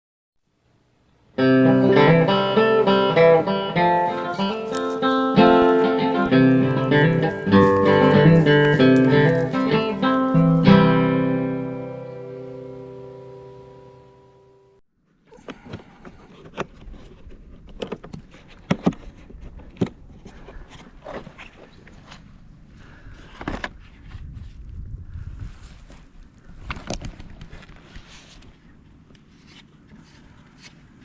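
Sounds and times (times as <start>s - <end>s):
acoustic guitar plucking: 1.4s - 14.8s.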